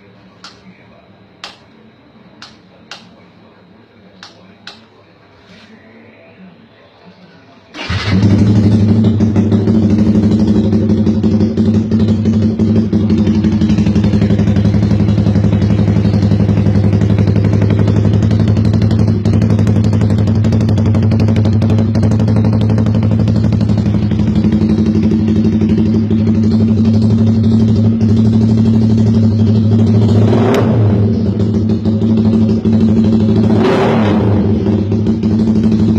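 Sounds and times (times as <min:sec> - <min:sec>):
motorcycle engine idling: 0:07.8 - 0:35.9.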